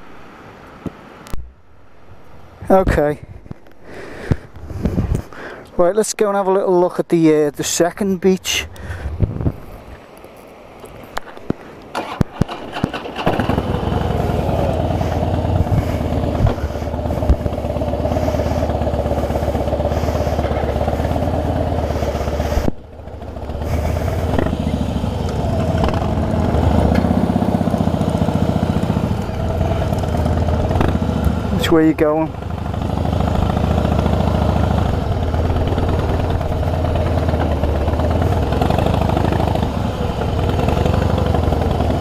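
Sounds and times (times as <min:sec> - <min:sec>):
motorcycle engine running: 0:12.0 - 0:42.0.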